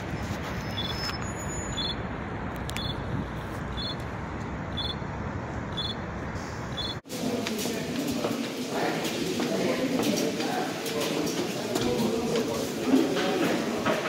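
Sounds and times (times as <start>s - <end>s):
train running on tracks: 0.0s - 14.0s
short high beeps: 0.8s - 2.0s, 2.8s - 3.0s, 3.7s - 4.0s, 4.7s - 5.0s, 5.7s - 6.0s, 6.7s - 7.0s.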